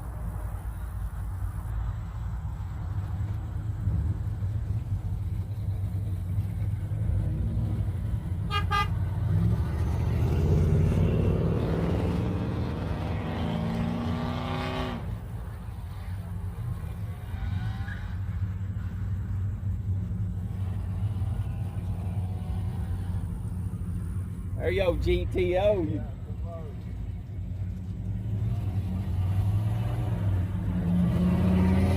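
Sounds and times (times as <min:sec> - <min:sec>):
car engines rumbling: 0:00.0 - 0:31.9
car accelerating past: 0:03.0 - 0:24.8, 0:26.8 - 0:31.9
car horn toot: 0:08.4 - 0:09.0.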